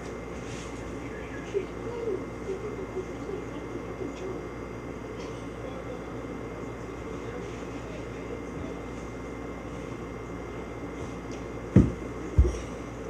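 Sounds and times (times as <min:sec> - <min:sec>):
steady low hum: 0:00.0 - 0:13.0
heavy thumps on floor: 0:11.7 - 0:12.7.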